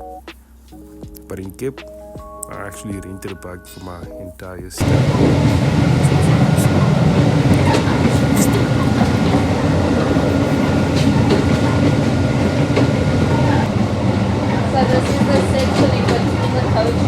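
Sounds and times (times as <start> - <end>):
train wheels clicking: 4.8 - 13.8, 14.5 - 17.0
train rumbling along track: 4.8 - 17.0.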